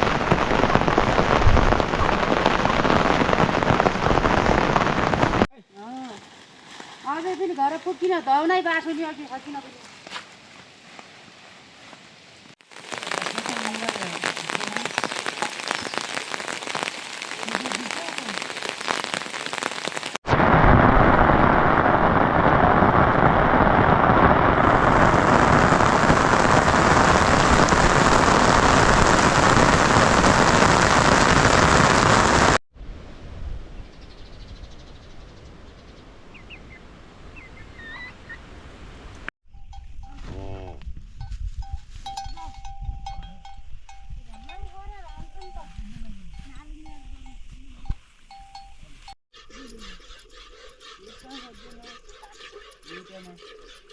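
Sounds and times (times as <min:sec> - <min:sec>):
rain falling: 0:00.0 - 0:05.5, 0:12.6 - 0:32.6.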